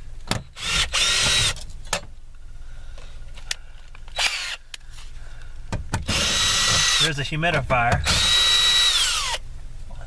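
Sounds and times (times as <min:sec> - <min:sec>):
power drill running: 0:00.6 - 0:01.6, 0:04.2 - 0:04.6, 0:06.1 - 0:07.1, 0:08.0 - 0:09.4.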